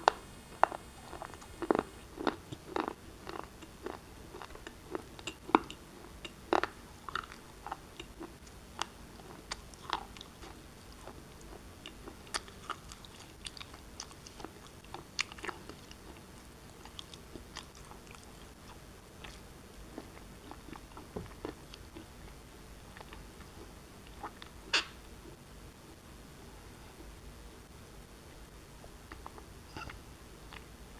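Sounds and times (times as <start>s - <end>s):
shale being chewed: 0.1s - 19.4s.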